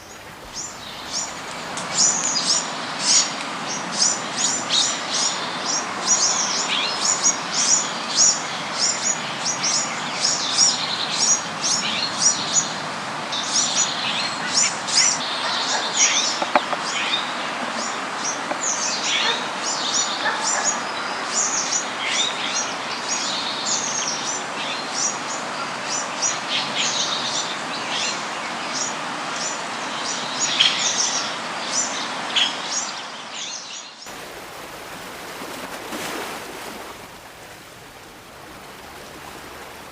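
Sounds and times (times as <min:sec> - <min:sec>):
steady background hiss: 0:00.0 - 0:06.8, 0:34.0 - 0:39.9.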